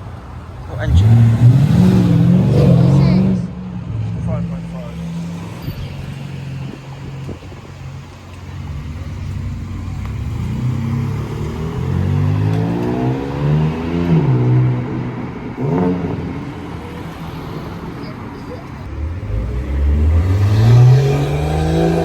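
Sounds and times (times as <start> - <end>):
car engine accelerating hard: 18.8 - 22.0.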